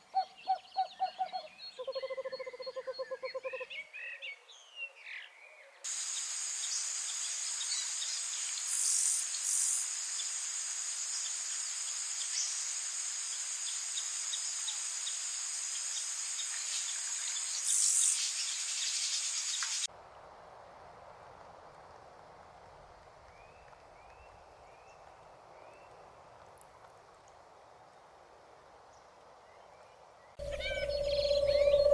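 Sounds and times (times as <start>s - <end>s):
insect chorus buzzing: 5.9s - 21.2s, 30.4s - 31.9s.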